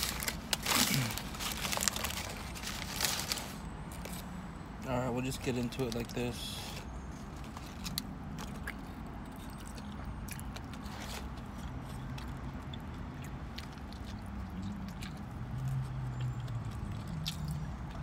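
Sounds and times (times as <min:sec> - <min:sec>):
person chewing food: 0:07.3 - 0:18.0.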